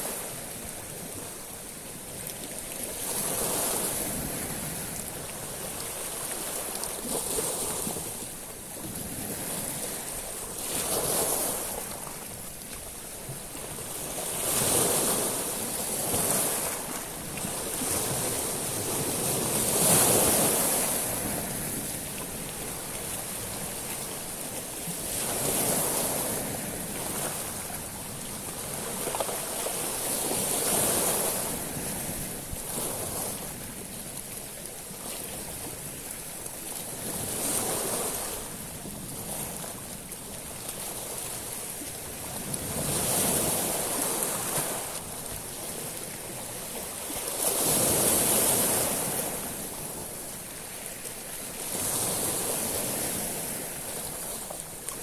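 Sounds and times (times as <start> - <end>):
waves washing over pebbles: 0.0 - 55.0.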